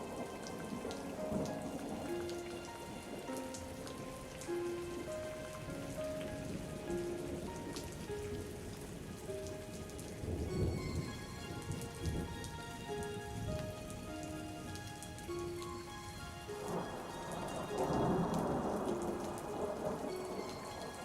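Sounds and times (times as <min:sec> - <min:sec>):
rain falling on a surface: 0:00.0 - 0:21.0
soft music of sustained notes: 0:00.0 - 0:21.0
distant thunder rumble: 0:16.6 - 0:20.8.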